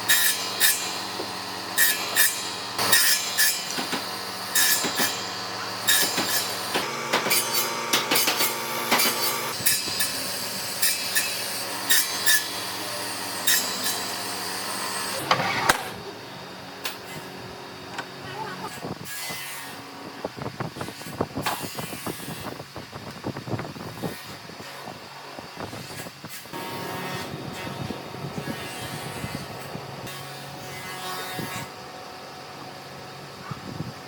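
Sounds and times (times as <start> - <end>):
hand tool scraping and knocking wood: 5.9 - 9.4.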